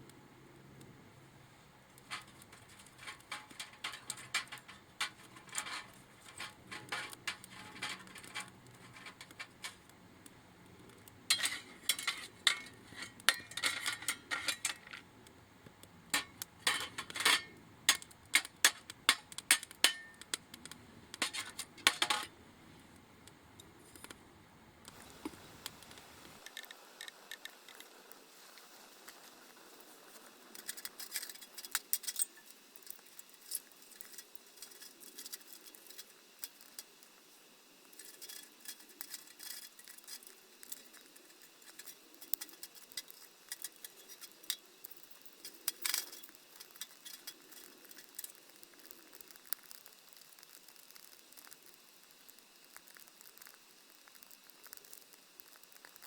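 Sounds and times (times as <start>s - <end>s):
light clicks and clinks: 2.0s - 9.9s.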